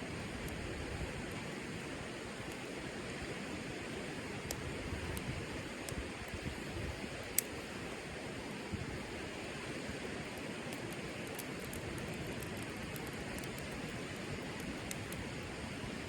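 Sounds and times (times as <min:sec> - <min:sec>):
campfire crackling and popping: 0:10.1 - 0:15.7.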